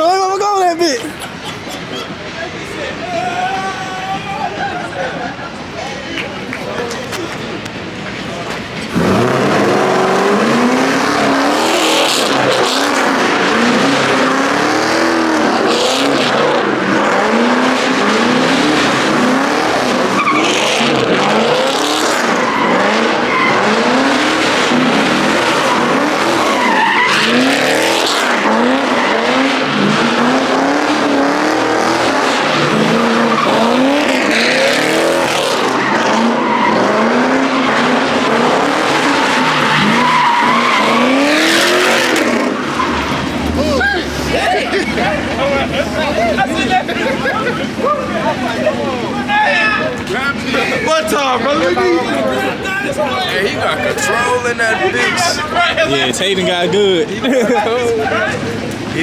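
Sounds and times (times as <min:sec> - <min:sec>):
tyres squealing: 0:00.0 - 0:59.0
car engine revving: 0:06.5 - 0:57.2.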